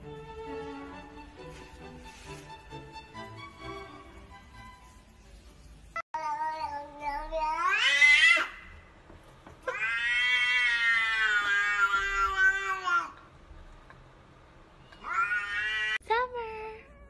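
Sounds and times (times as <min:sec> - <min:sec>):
cat meowing: 0:06.2 - 0:08.6, 0:09.6 - 0:13.2, 0:14.8 - 0:16.0.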